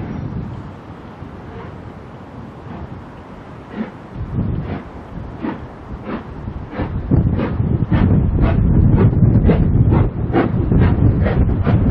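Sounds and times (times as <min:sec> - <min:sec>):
heavy low rumble: 0:00.0 - 0:11.9
steam locomotive chuffing: 0:04.6 - 0:11.8.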